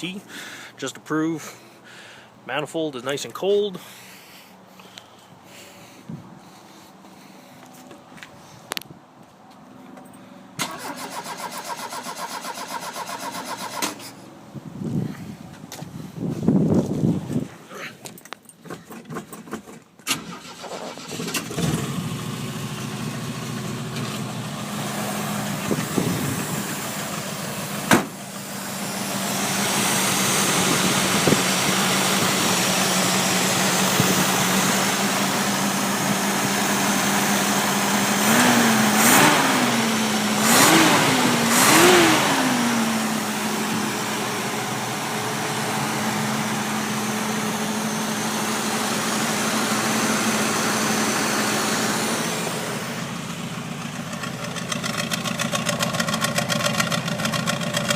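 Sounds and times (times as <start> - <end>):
car engine starting and idling: 10.5 - 14.5, 18.6 - 57.9
engine revving: 20.2 - 53.2.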